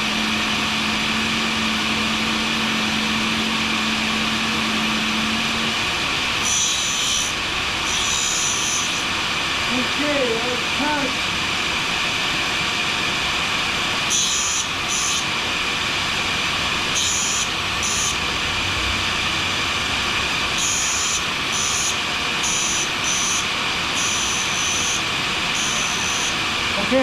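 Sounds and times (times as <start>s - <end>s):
dust extraction vacuum rushing: 0.0s - 8.3s
blade grinding on diamond wheel: 0.0s - 11.2s, 16.1s - 18.4s, 19.8s - 27.0s.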